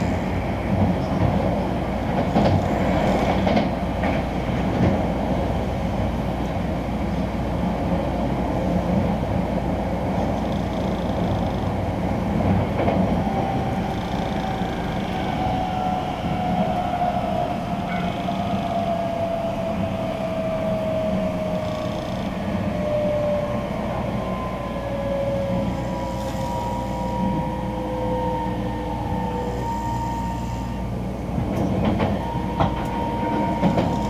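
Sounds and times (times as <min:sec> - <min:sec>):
train wheels rumbling on rail: 0:00.0 - 0:34.0
train motor whine: 0:10.2 - 0:11.8, 0:12.8 - 0:34.0.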